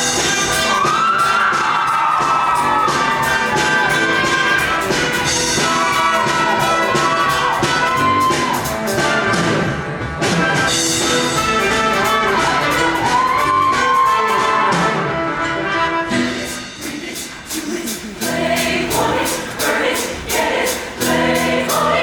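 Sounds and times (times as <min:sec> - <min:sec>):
steady drum beat: 0:00.0 - 0:15.1, 0:16.2 - 0:22.0
brass melody: 0:00.0 - 0:16.9
live band playing: 0:00.0 - 0:22.0.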